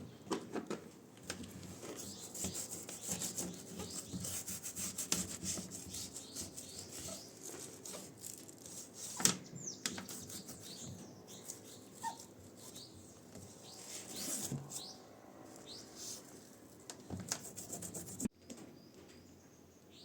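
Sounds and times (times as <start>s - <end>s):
hand scrubbing strokes: 1.7s - 9.2s, 10.0s - 14.9s, 15.6s - 16.8s, 17.4s - 18.3s.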